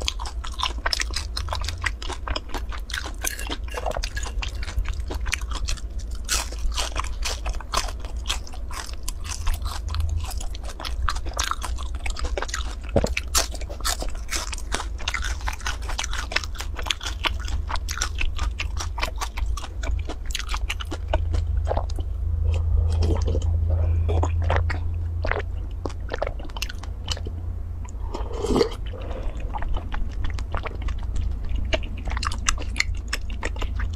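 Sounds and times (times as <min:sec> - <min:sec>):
crunching fried food: 0:00.0 - 0:33.9
sip through a straw: 0:28.0 - 0:29.4.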